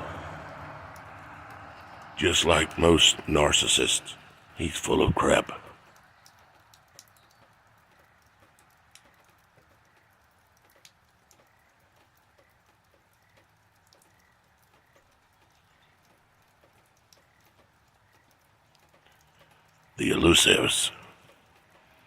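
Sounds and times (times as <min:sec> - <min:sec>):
faint background hiss: 0:00.0 - 0:22.0
soft ticks: 0:05.8 - 0:22.0.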